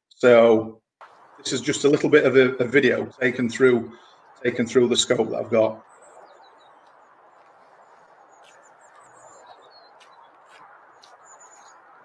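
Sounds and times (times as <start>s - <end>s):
high bird chirps: 5.2s - 12.0s.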